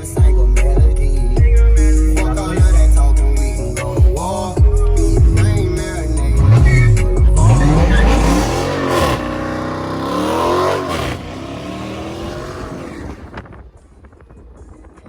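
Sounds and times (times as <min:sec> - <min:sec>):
car engine revving hard: 0:05.3 - 0:13.4.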